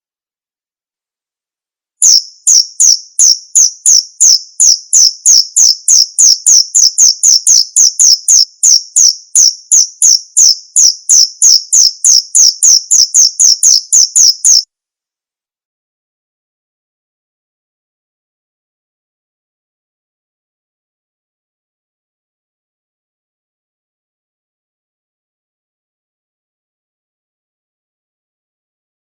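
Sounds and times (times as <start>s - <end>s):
cricket chirping: 2.0s - 14.6s.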